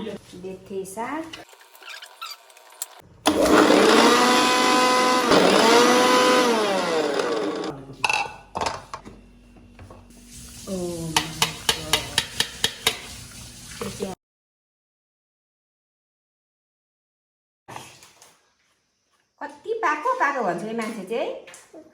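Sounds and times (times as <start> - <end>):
electric blender running: 3.3 - 7.7.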